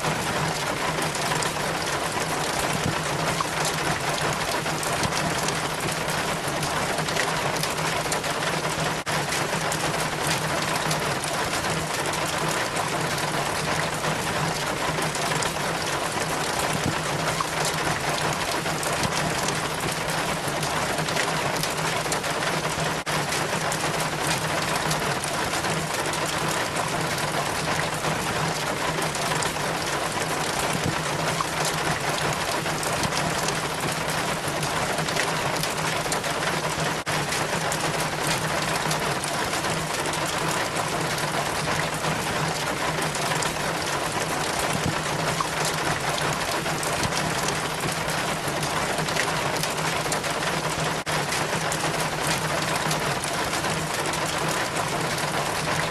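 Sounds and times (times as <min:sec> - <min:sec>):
rainwater dripping down rain chain: 0:00.0 - 0:55.9.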